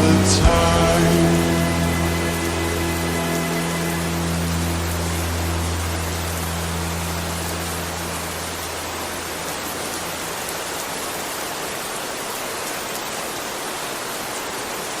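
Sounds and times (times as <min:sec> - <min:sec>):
low bass note music: 0:00.0 - 0:10.4
steady rain: 0:00.0 - 0:15.0.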